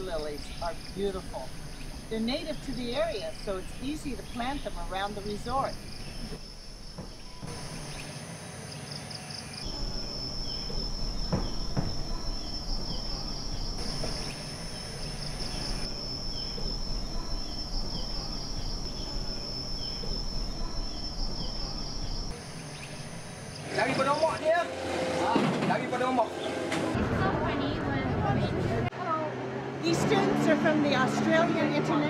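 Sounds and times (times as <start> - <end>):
insects droning high-pitched: 0.0 - 24.7.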